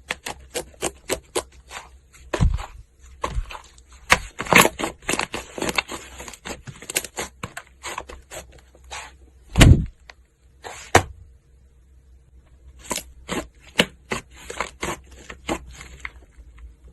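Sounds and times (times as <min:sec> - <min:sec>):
heavy thud: 0:09.5 - 0:10.0.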